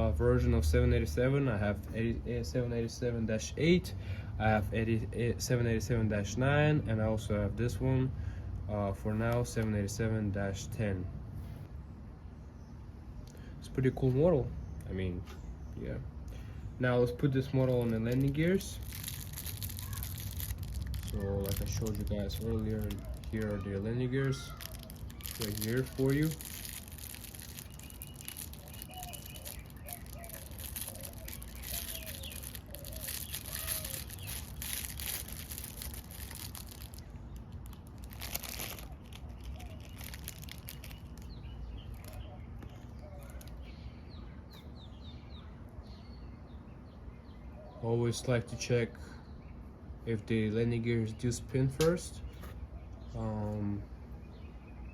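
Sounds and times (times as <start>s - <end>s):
faint chirping: 14.4s - 46.4s
plastic packaging crinkling: 17.4s - 43.7s.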